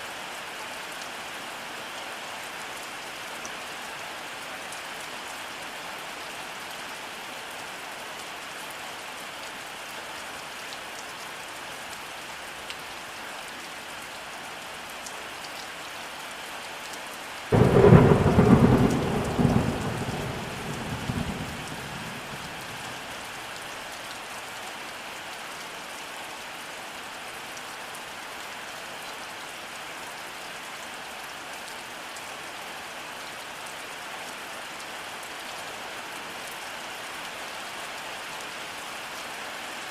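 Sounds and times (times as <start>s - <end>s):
steady rainfall: 0.0s - 39.9s
thunderclap: 17.6s - 22.4s.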